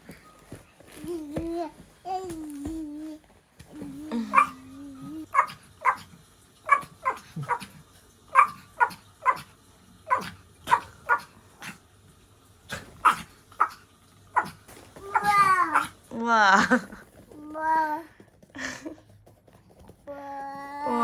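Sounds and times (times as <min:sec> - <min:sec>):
dog barking: 0:04.3 - 0:04.6, 0:05.3 - 0:07.7, 0:08.3 - 0:09.5, 0:10.1 - 0:11.8, 0:12.7 - 0:16.0.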